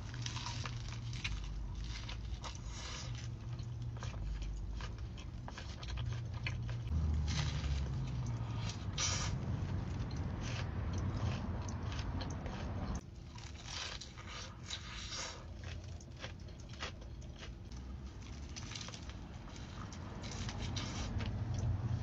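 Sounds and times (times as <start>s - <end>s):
crunchy bites and chewing: 0.0s - 22.0s.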